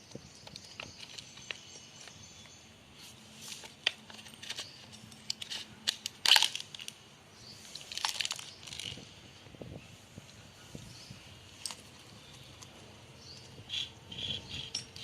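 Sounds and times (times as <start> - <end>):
metal parts and tools clicking: 3.5 - 7.0, 7.7 - 9.0, 13.3 - 15.0.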